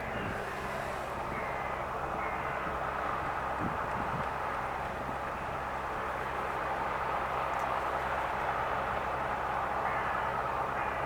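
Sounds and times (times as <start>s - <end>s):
even rushing noise: 0.0s - 2.1s
ferry engines humming: 0.0s - 11.0s.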